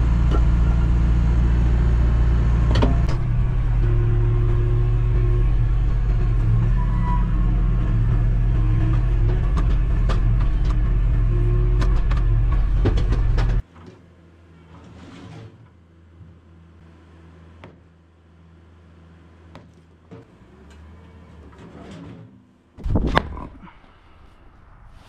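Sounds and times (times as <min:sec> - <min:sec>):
diesel engine running: 0:00.0 - 0:13.6.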